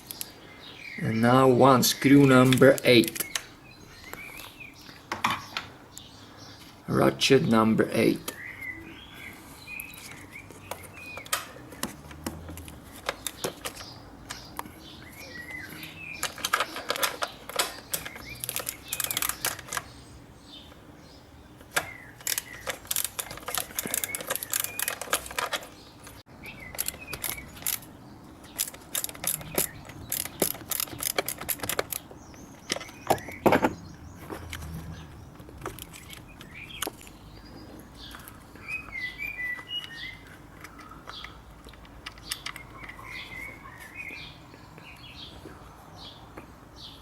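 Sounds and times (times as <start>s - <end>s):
birds chirping: 0.0s - 47.0s
ratchet clicking: 16.2s - 19.8s, 22.2s - 25.6s, 28.5s - 32.1s.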